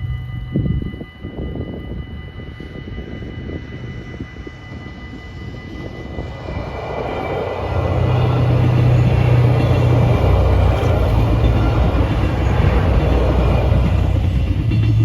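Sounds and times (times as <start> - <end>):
train engine rumble: 0.0 - 15.0
level crossing bells ringing: 4.0 - 15.0.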